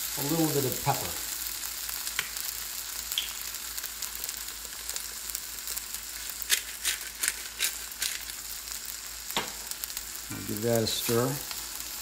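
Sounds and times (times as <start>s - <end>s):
rice sizzling in a wok: 0.0s - 12.0s.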